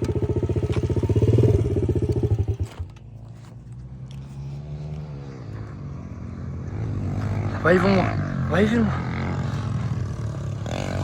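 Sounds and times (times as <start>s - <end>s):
pit bike engine running: 0.0s - 3.0s
distant pit bike engines revving: 0.0s - 11.0s.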